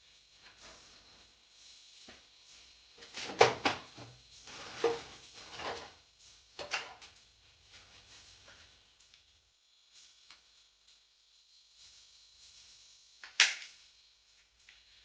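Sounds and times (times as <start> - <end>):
objects knocking and clattering: 3.0 - 5.9.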